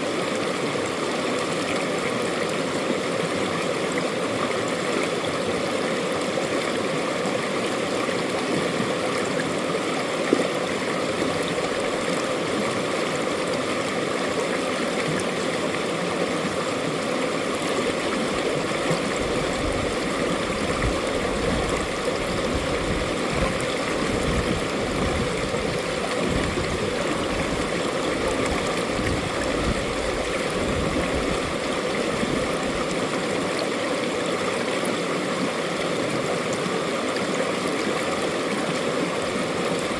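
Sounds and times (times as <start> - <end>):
stream rushing and babbling: 0.0 - 39.9.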